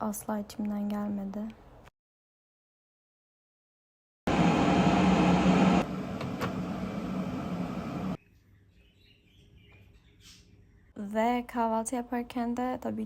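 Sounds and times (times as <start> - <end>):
kitchen appliance hissing and humming: 4.3 - 8.2.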